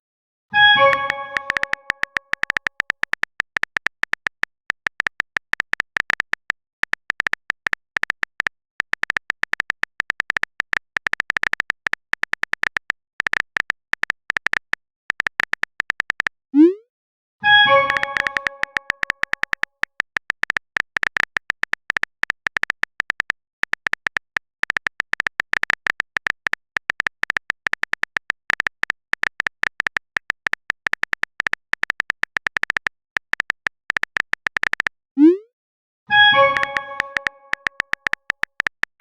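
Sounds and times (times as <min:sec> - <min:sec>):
notification chime: 0:00.6 - 0:02.0, 0:17.5 - 0:18.9, 0:36.1 - 0:37.6
keyboard typing ticks: 0:00.6 - 0:16.8, 0:17.5 - 0:35.5, 0:36.2 - 0:39.0.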